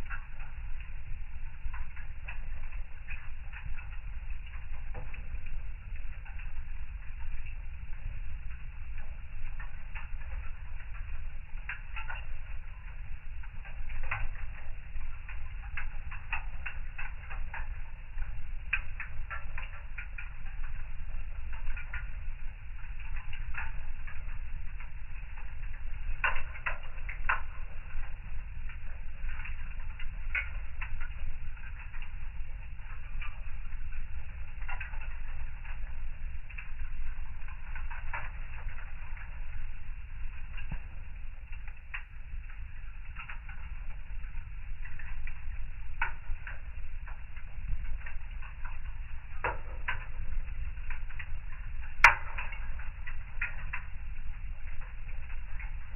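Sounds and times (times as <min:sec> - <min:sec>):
wood fire crackling: 0:00.0 - 0:55.9
sharp pops of burning wood: 0:08.8 - 0:54.0.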